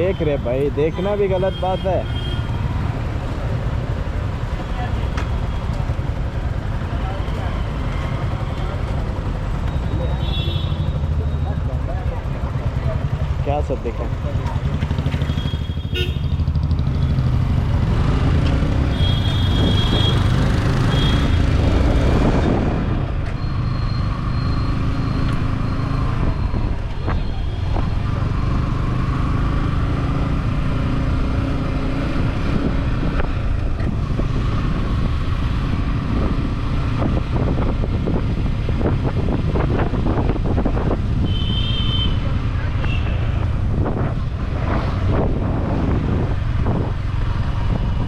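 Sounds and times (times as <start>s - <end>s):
motorcycle engine running: 8.3s - 21.2s
wind rushing over microphone: 21.4s - 23.2s, 30.4s - 41.6s, 42.2s - 48.0s.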